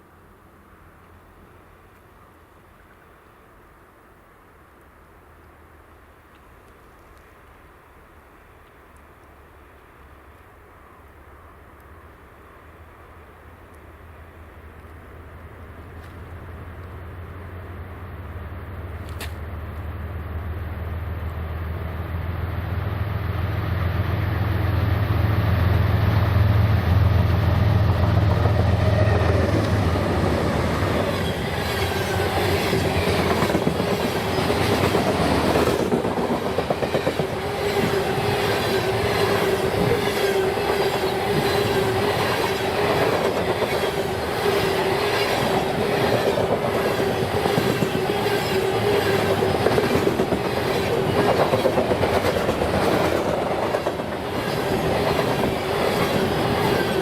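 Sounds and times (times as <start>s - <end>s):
diesel locomotive drone: 0.0s - 57.0s
train wheels clickety-clack: 27.2s - 57.0s.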